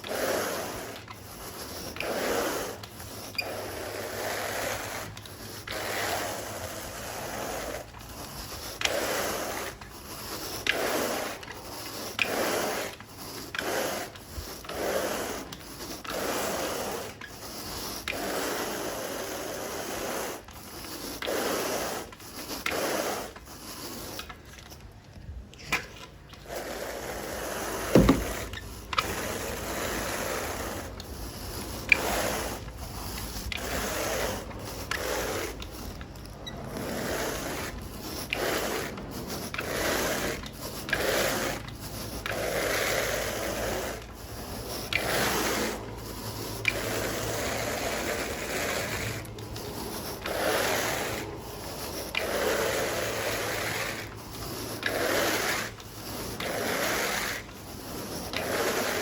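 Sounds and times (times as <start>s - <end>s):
carpet rake rasping through carpet: 0.0s - 24.9s, 25.6s - 59.0s
sharp knock: 27.9s - 28.5s.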